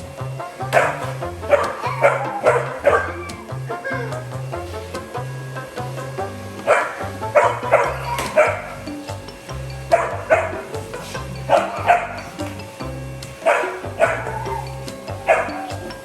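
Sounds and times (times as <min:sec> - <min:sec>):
background music with bass line: 0:00.0 - 0:16.0
puppy barking: 0:00.6 - 0:04.2, 0:06.6 - 0:08.9, 0:09.9 - 0:10.8, 0:11.5 - 0:12.4, 0:13.4 - 0:15.9.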